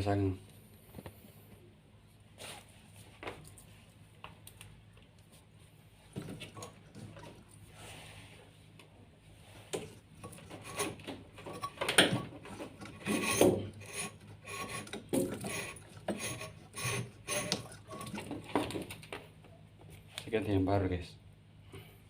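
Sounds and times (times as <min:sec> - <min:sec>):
scraping and rubbing strokes: 0:09.3 - 0:11.8, 0:12.4 - 0:18.2.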